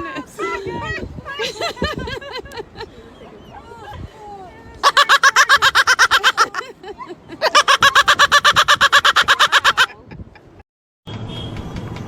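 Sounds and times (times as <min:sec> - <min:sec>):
parrot imitating laughter: 0:04.8 - 0:10.0.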